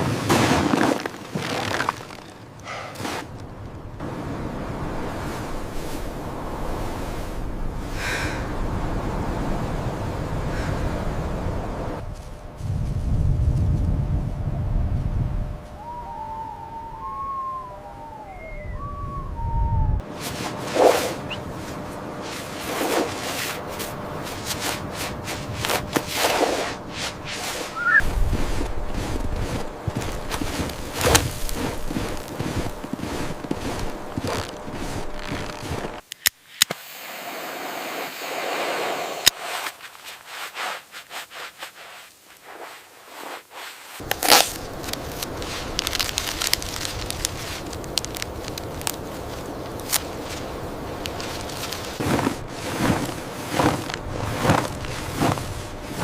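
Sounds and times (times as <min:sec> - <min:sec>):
crackling noise: 0:00.3 - 0:07.5, 0:15.7 - 0:56.0
rough scraping strokes: 0:20.1 - 0:36.0, 0:38.4 - 0:47.7, 0:51.2 - 0:56.0
steady hiss: 0:36.4 - 0:52.0
sharp cracks and snaps: 0:44.0 - 0:50.4.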